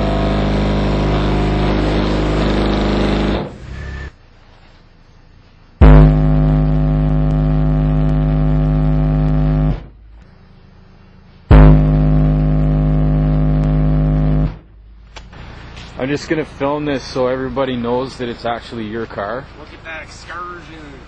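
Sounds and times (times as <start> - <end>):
subwoofer buzzing test tone: 0.0 - 15.8.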